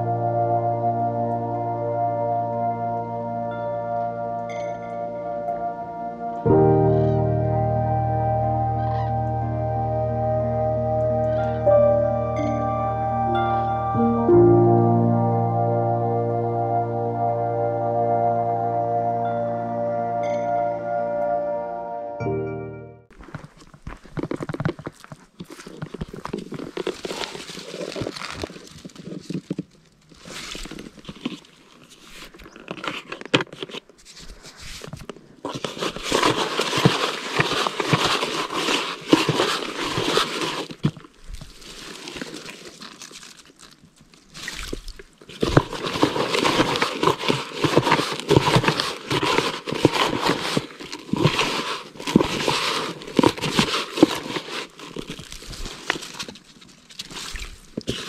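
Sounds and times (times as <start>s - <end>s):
rustling and crinkling: 23.1s - 58.0s
small crackles and clicks: 23.1s - 58.0s.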